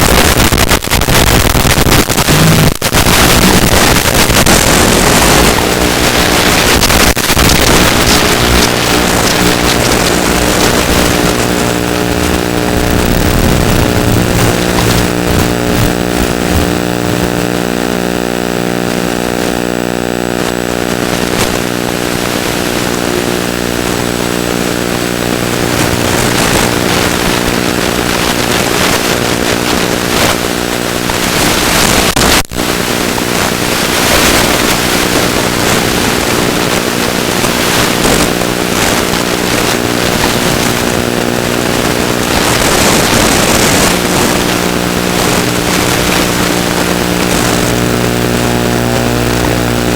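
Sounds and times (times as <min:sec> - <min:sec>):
propeller motor whining: 0:03.1 - 0:17.9, 0:20.4 - 0:31.3.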